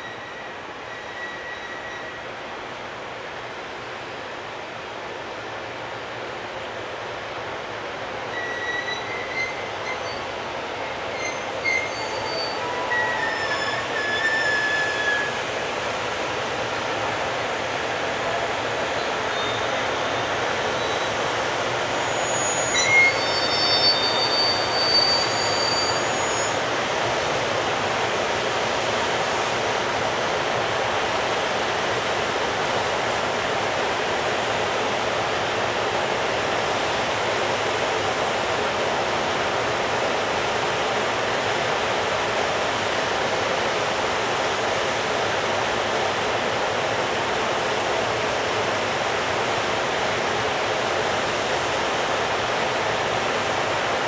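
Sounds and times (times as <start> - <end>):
high-pitched wheel squeals: 0.0 - 2.2, 8.3 - 15.8, 18.3 - 26.7
freight train rolling on rails: 0.0 - 54.0.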